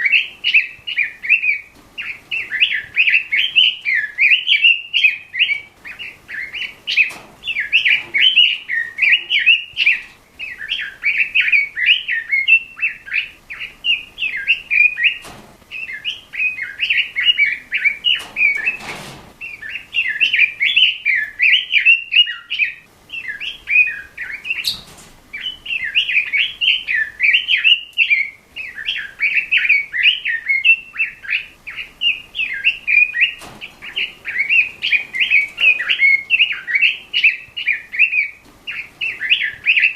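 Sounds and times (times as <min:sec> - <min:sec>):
bird singing warbling song: 0:00.0 - 0:39.9.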